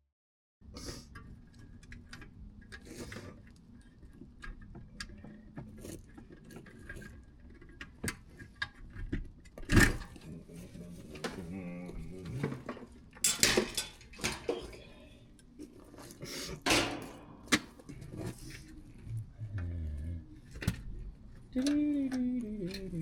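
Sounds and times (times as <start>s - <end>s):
metal tools clinking: 13.2s - 14.7s
person speaking: 17.3s - 20.4s, 21.5s - 23.0s.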